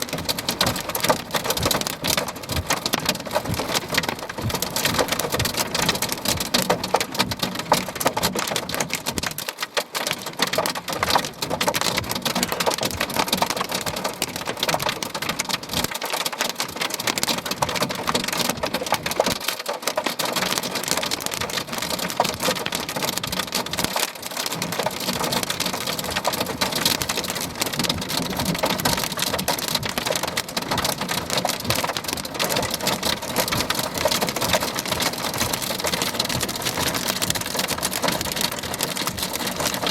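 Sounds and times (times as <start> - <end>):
heavy rain on hard surface: 0.0 - 39.9.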